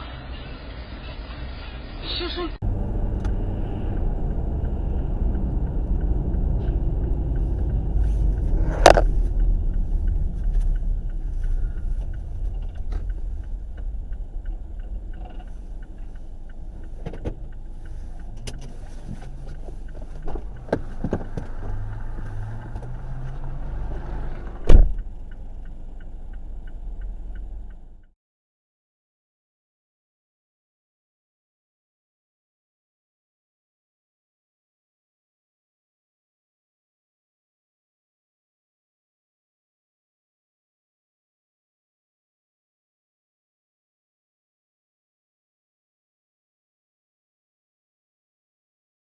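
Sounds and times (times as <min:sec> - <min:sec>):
car road and engine rumble: 0:00.0 - 0:28.2.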